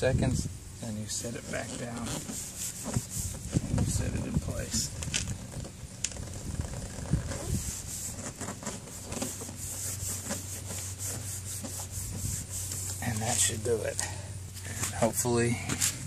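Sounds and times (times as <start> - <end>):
hands rubbing a step piece: 1.3 - 5.0, 6.7 - 13.7.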